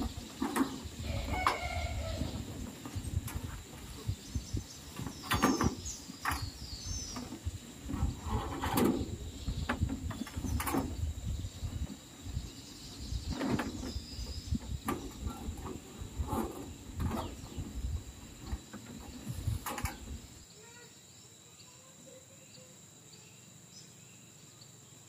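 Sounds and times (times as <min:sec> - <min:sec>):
high insect whine: 0:00.0 - 0:25.0
knocks and clatters: 0:05.0 - 0:06.5.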